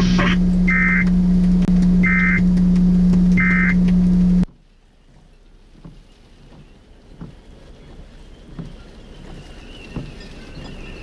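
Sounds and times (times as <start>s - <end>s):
loud low hum: 0.0s - 4.7s
short high beeps: 3.4s - 3.8s.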